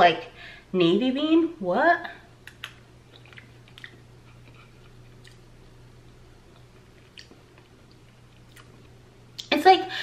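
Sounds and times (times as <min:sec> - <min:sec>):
steady low hum: 0:00.0 - 0:10.0
person chewing: 0:02.4 - 0:09.0.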